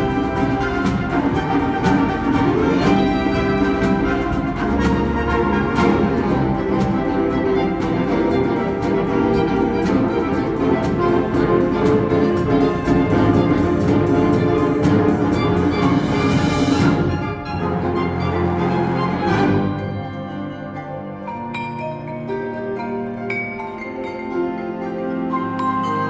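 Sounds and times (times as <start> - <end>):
sharp percussion strikes: 0.0 - 17.7
saxophone quartet: 0.0 - 21.6
wind ensemble playing chords: 0.0 - 26.0.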